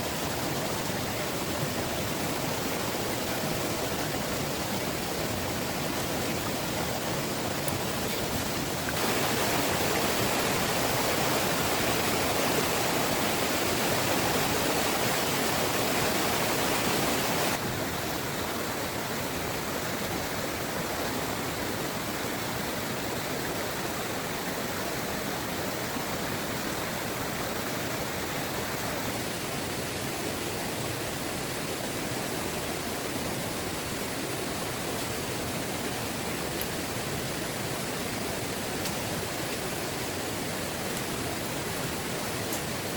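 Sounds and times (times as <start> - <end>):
heavy rain pouring: 0.0 - 18.7.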